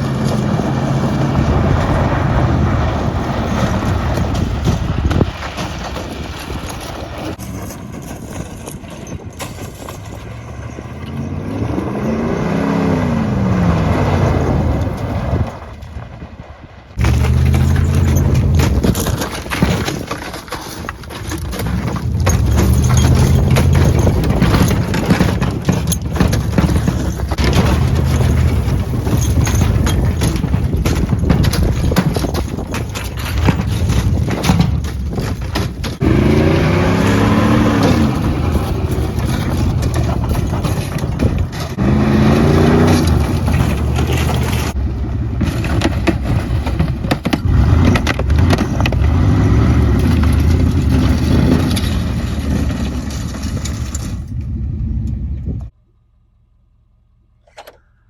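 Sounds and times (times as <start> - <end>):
truck engine revving: 0.0 - 7.9, 9.9 - 19.6, 21.6 - 31.4, 35.8 - 53.8.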